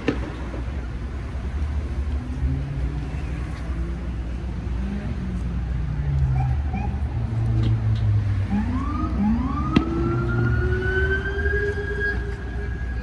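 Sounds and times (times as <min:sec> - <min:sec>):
sharp crack: 0:00.0 - 0:00.8
siren wailing: 0:08.4 - 0:13.0.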